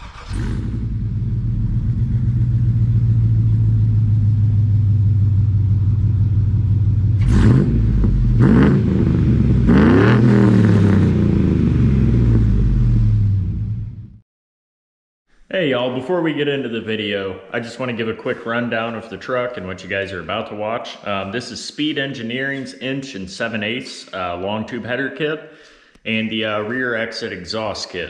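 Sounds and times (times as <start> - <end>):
truck engine idling and revving: 0.0 - 14.2.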